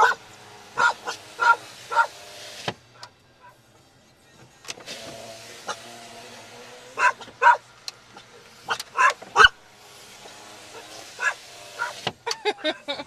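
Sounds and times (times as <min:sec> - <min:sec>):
dog barking: 0:00.0 - 0:00.2, 0:00.8 - 0:02.2, 0:07.0 - 0:07.6, 0:08.7 - 0:09.6, 0:10.8 - 0:12.0.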